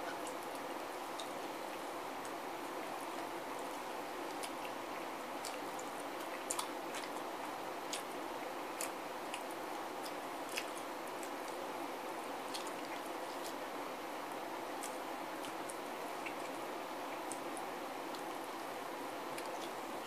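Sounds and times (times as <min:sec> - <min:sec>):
steady background hiss: 0:00.0 - 0:20.0
person chewing chicken wings: 0:05.4 - 0:11.6, 0:12.4 - 0:13.6.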